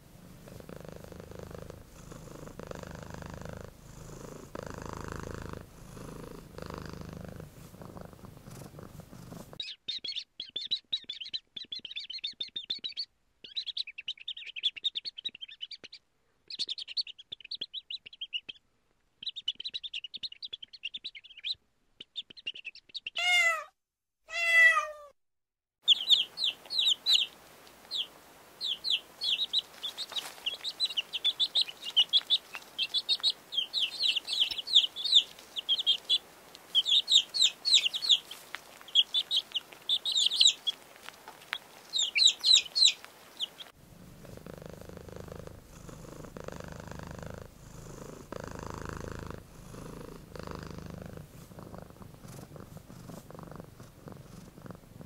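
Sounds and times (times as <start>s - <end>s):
chicks peeping: 9.6s - 18.6s, 19.2s - 23.4s, 25.8s - 43.8s
louder lower chick call: 23.2s - 23.7s, 24.3s - 25.1s.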